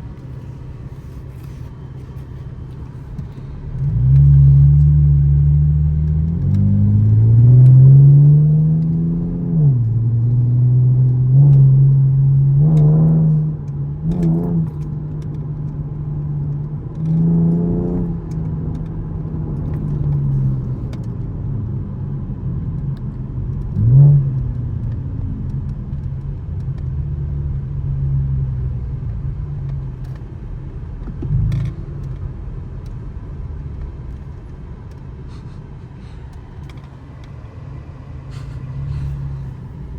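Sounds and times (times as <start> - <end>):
car engine revving: 0.0 - 14.9.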